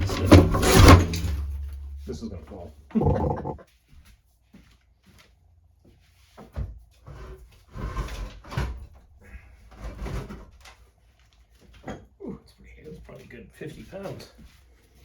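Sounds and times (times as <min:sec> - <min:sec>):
scraping and rattling: 0:00.0 - 0:02.4.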